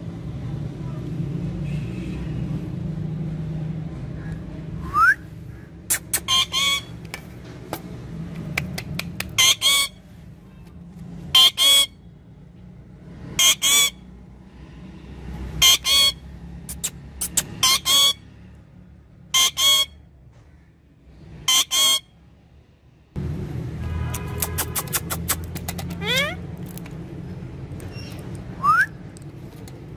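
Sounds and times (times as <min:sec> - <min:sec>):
parrot harsh calls: 0:05.9 - 0:07.0, 0:09.4 - 0:10.0, 0:11.3 - 0:12.0, 0:13.4 - 0:14.0, 0:15.6 - 0:18.2, 0:19.3 - 0:20.0, 0:21.4 - 0:22.1, 0:26.0 - 0:26.4.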